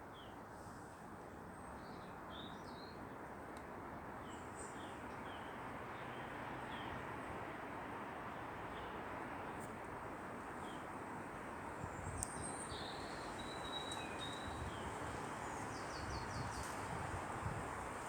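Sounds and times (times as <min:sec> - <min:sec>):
songbird chirps: 0:11.9 - 0:16.9.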